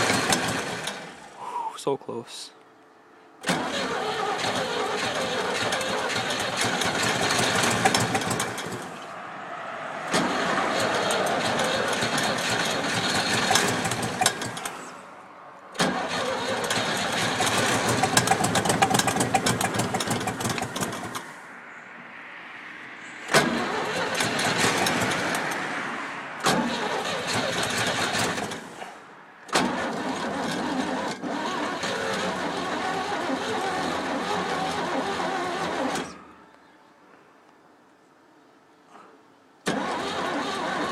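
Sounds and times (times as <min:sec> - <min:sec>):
engine cranking on starter: 0:00.0 - 0:01.4, 0:03.4 - 0:09.1, 0:10.1 - 0:15.1, 0:15.7 - 0:21.4, 0:23.3 - 0:25.8, 0:26.4 - 0:36.2, 0:39.6 - 0:40.9.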